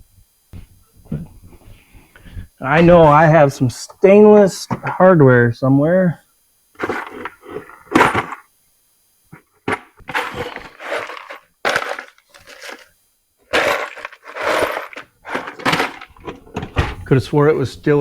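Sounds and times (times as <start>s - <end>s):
bags rustling: 6.8s - 8.4s, 9.7s - 12.9s, 13.5s - 18.0s
small metal parts clattering: 9.7s - 12.9s, 13.5s - 17.1s.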